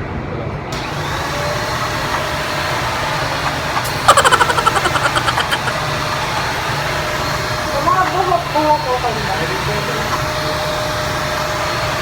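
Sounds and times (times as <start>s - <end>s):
handheld vacuum motor whirring: 0.8s - 12.0s.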